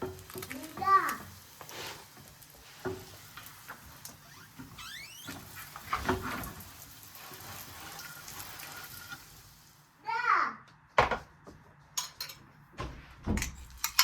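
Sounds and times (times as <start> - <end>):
rising squeaks: 4.2 - 5.7
kitchen clicks and knocks: 11.0 - 11.3, 11.9 - 14.0.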